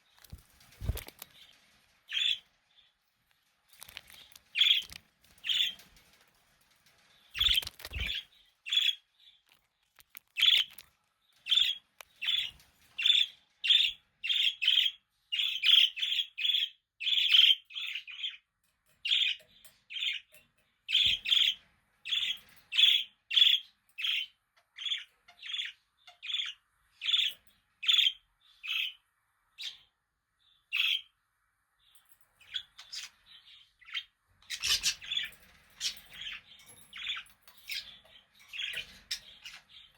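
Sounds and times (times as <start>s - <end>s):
budgerigars chirping: 33.8s - 36.4s.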